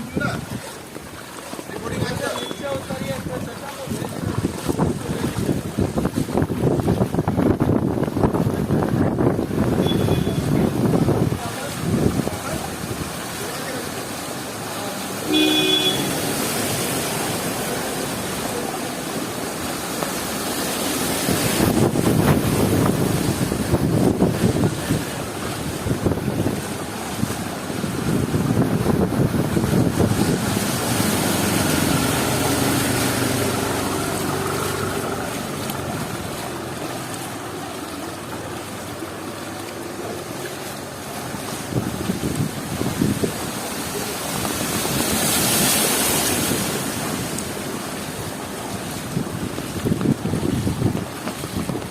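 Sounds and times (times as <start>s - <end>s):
heavy rain falling: 0.0s - 51.9s
short horn-like tone: 9.8s - 10.4s, 15.3s - 16.2s
vehicle engine passing: 27.7s - 41.6s.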